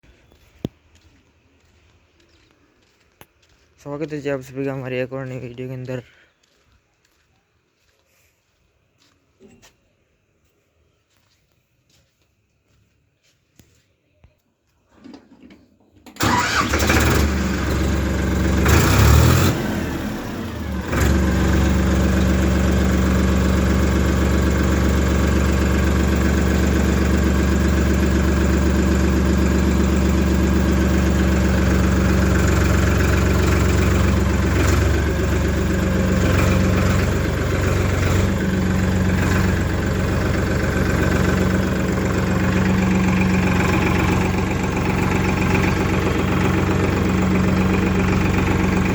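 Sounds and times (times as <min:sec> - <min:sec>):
diesel engine starting and idling: 0:15.0 - 0:48.9.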